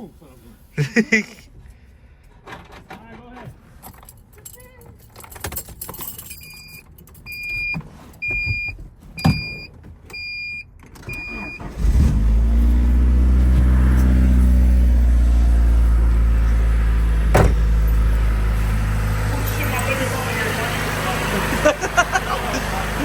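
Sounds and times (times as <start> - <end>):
car engine starting and running: 5.2 - 23.0.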